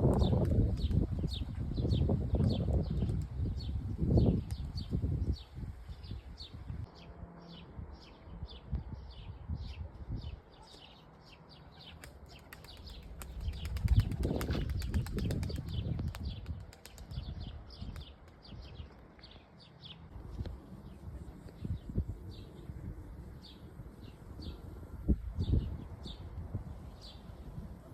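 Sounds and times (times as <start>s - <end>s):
pigeons flapping wings: 11.8s - 17.3s.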